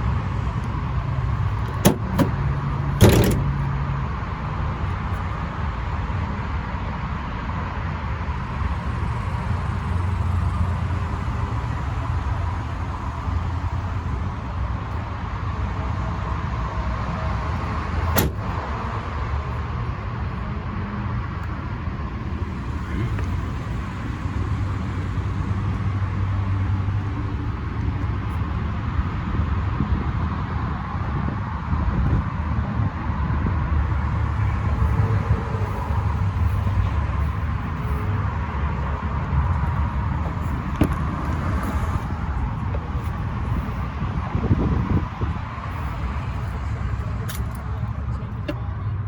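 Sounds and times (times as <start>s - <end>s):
diesel engine running: 0.0s - 5.3s.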